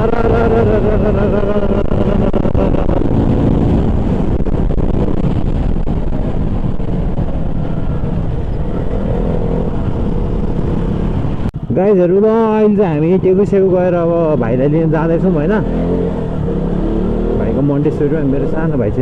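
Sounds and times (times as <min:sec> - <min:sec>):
motorcycle engine running: 0:00.0 - 0:11.6
wind noise on microphone: 0:00.0 - 0:12.6.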